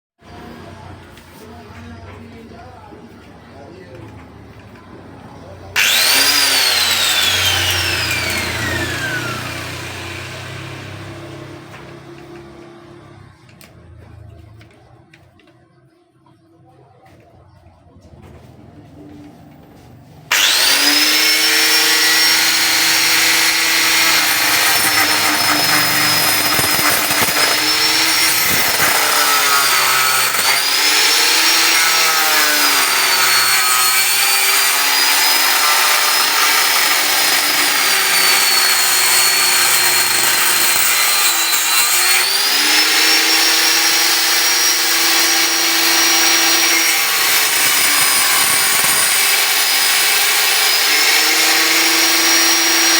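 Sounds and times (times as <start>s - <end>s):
angle grinder cutting metal: 5.8s - 12.1s, 20.3s - 52.9s.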